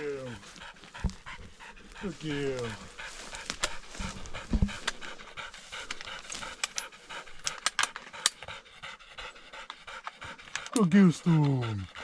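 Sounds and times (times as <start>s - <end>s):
dog panting: 0.0s - 12.0s
sharp clicks: 5.8s - 8.5s.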